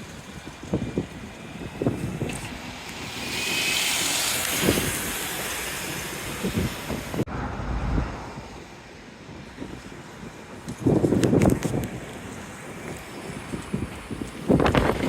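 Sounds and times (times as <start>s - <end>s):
wind buffeting microphone: 0.0s - 15.0s
road vehicle passing: 1.7s - 9.1s.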